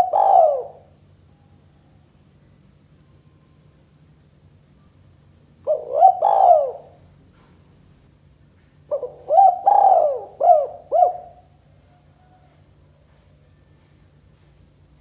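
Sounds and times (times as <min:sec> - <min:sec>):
dove cooing: 0:00.0 - 0:00.9, 0:05.6 - 0:07.0, 0:08.9 - 0:11.5.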